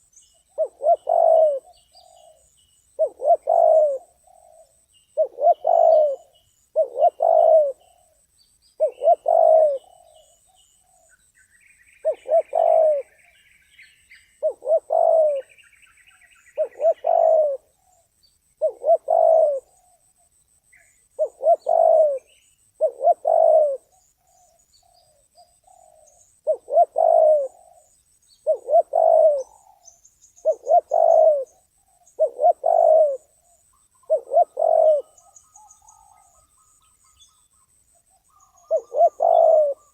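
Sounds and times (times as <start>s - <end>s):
dove cooing: 0.0s - 8.2s, 8.8s - 11.1s, 12.0s - 13.4s, 14.2s - 39.9s
small birds chirping: 0.0s - 39.9s.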